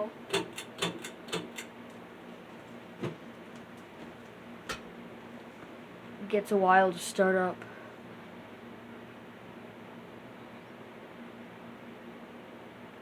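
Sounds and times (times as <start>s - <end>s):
sharp clicks of fan: 0.0s - 2.0s, 3.3s - 5.0s
ceiling fan humming: 0.0s - 13.0s.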